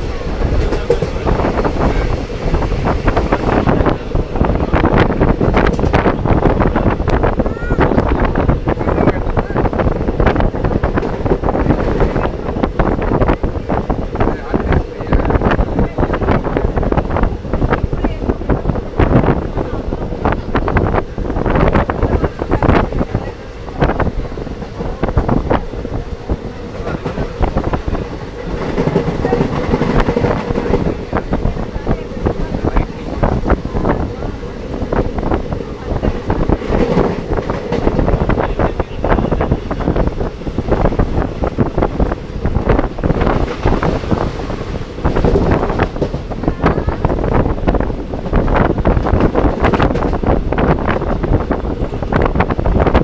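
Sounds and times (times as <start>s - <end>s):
carriage and track rattles: 0.0s - 6.2s, 21.7s - 46.4s
wheels clattering on rails: 0.0s - 19.6s, 20.2s - 53.0s
passenger train rumble: 0.0s - 53.0s
wind buffeting microphone: 0.0s - 53.0s.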